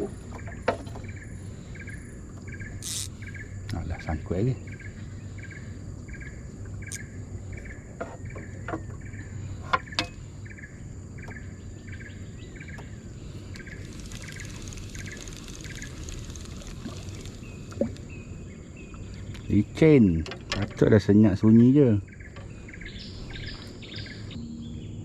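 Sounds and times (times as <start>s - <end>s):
high insect whine: 1.8s - 7.7s, 10.3s - 19.6s
sharp clicks: 2.8s - 3.1s, 13.6s - 18.1s
shrill insect buzz: 2.8s - 3.4s, 13.3s - 18.2s
bird chirping call: 2.8s - 3.5s.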